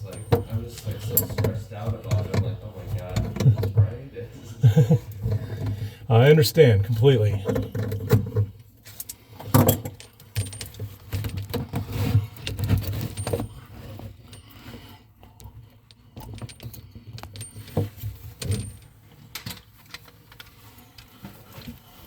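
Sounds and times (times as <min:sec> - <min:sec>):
metal parts and tools clinking: 0:00.0 - 0:03.7, 0:07.1 - 0:11.8, 0:12.4 - 0:14.7, 0:15.4 - 0:21.1.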